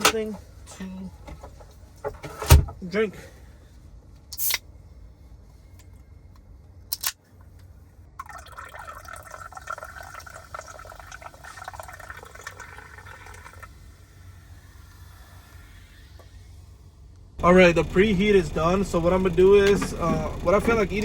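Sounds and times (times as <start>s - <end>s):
drink pouring into cup: 8.2s - 13.8s
low steady hum: 17.4s - 21.0s.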